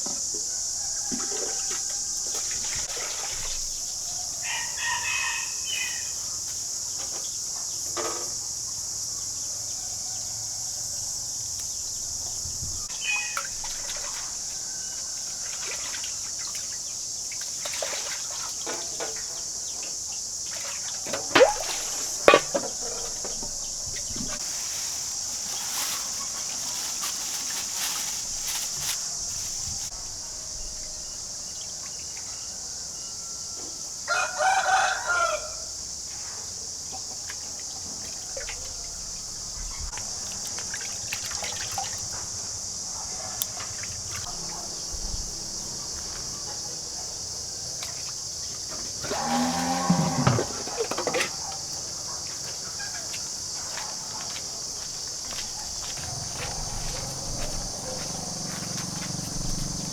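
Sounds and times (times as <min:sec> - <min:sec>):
rooster crowing: 0:00.3 - 0:02.9, 0:04.0 - 0:06.4, 0:09.5 - 0:11.3, 0:12.9 - 0:15.9, 0:32.3 - 0:35.8, 0:49.0 - 0:50.7, 0:55.3 - 0:59.9.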